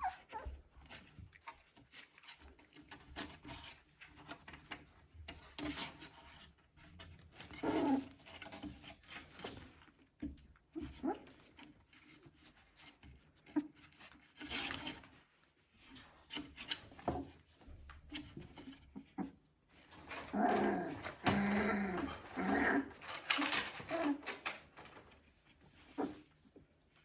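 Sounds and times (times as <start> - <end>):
puppies crying and whining: 0.0 - 0.6.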